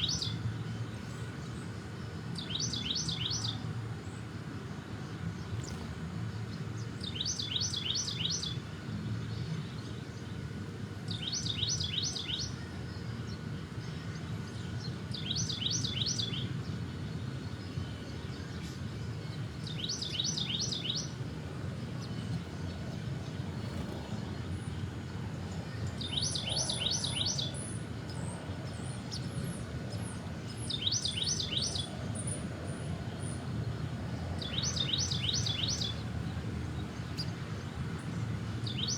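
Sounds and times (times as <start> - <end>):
steady low rumble: 21.1 - 38.2.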